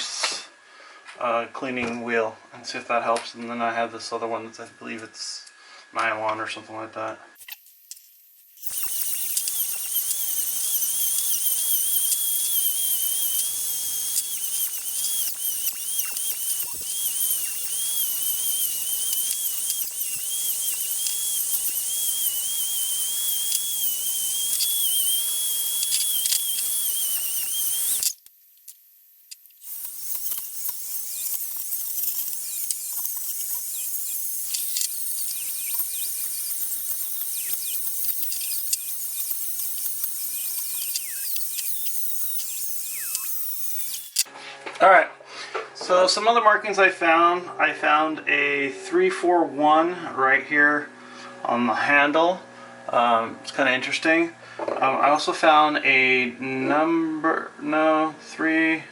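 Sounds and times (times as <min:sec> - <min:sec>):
rotary tool wire wheel on metal: 0:08.6 - 0:28.2, 0:29.3 - 0:44.3.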